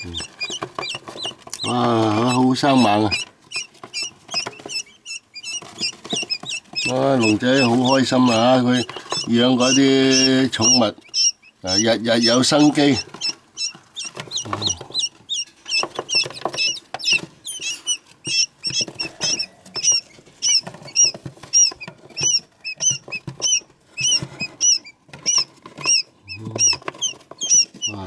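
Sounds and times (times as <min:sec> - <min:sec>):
quail chicks peeping: 0:00.0 - 0:28.0.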